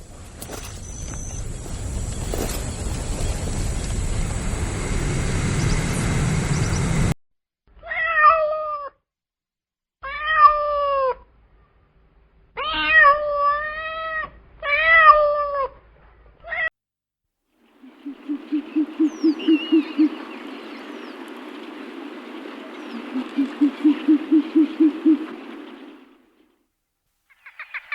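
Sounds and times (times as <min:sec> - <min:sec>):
steady rushing noise: 0:01.2 - 0:07.2, 0:17.9 - 0:26.2
cat meowing: 0:10.0 - 0:11.2, 0:12.6 - 0:15.7, 0:16.4 - 0:16.7.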